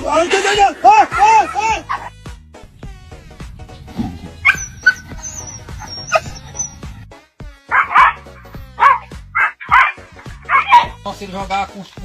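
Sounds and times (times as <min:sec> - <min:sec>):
background music: 0:00.0 - 0:12.0
dog barking: 0:04.4 - 0:06.8, 0:07.7 - 0:11.0
thin high squeaks: 0:04.4 - 0:06.9.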